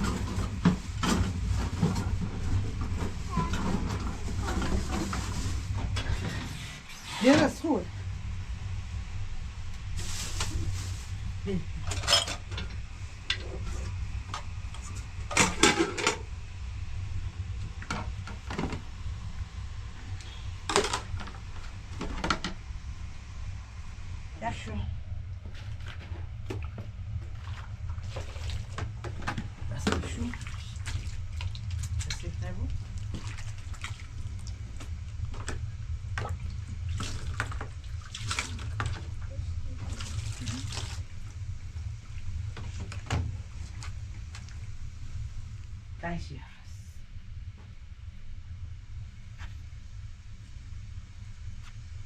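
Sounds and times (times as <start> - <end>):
steady low hum: 0.0 - 52.0
steady low rumble: 0.0 - 52.0
water splashing and dripping: 30.1 - 34.9, 36.2 - 39.1, 39.7 - 41.2.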